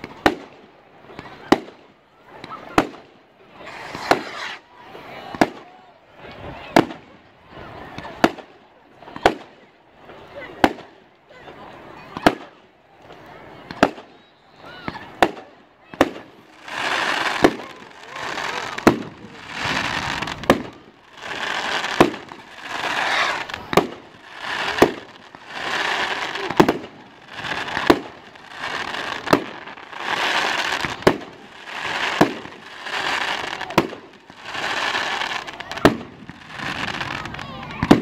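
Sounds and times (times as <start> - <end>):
fireworks bangs: 0.0 - 4.6, 12.1 - 12.5, 13.1 - 14.2, 14.8 - 38.0
fireworks crackling: 0.0 - 38.0.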